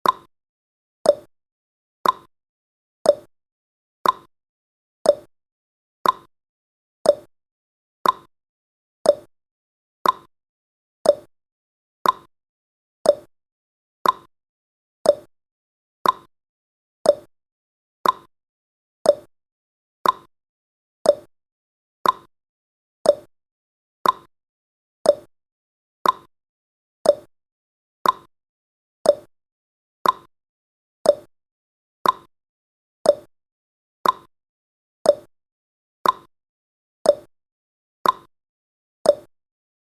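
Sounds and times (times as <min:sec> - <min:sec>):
countdown timer ticking: 0:07.1 - 0:07.3, 0:09.1 - 0:09.3, 0:11.1 - 0:11.3, 0:13.1 - 0:13.3, 0:15.1 - 0:15.3, 0:17.1 - 0:17.3, 0:19.1 - 0:19.3, 0:21.1 - 0:21.3, 0:23.1 - 0:23.3, 0:24.0 - 0:24.3, 0:25.1 - 0:25.3, 0:26.0 - 0:26.3, 0:27.1 - 0:27.3, 0:28.0 - 0:28.3, 0:29.1 - 0:29.3, 0:30.0 - 0:30.3, 0:31.1 - 0:31.3, 0:32.0 - 0:32.3, 0:33.1 - 0:33.3, 0:34.0 - 0:34.3, 0:35.1 - 0:35.3, 0:36.0 - 0:36.3, 0:37.1 - 0:37.3, 0:38.0 - 0:38.3, 0:39.1 - 0:39.3.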